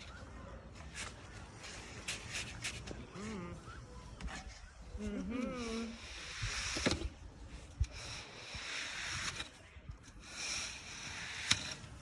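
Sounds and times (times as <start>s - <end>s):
tools scraping wet concrete: 0.8s - 3.5s, 5.2s - 12.0s.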